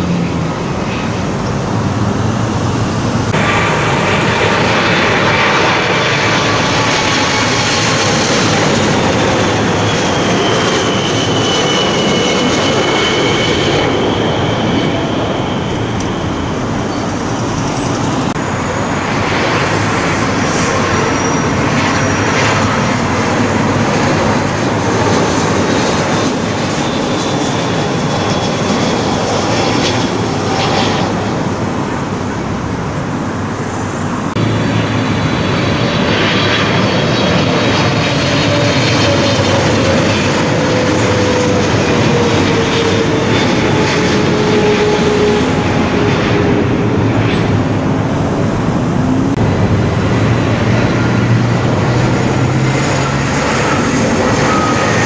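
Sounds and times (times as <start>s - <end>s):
jet airliner passing overhead: 0.0s - 55.0s.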